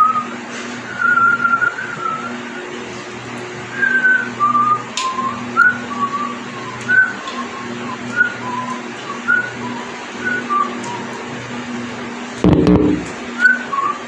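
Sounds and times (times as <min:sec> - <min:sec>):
person whistling a tune: 0:00.0 - 0:02.4, 0:03.7 - 0:11.1, 0:13.4 - 0:14.0
low steady hum: 0:12.4 - 0:13.5.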